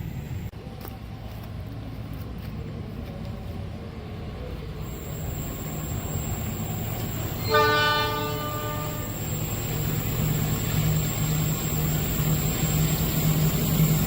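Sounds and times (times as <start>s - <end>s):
train horn blast: 7.4s - 9.3s.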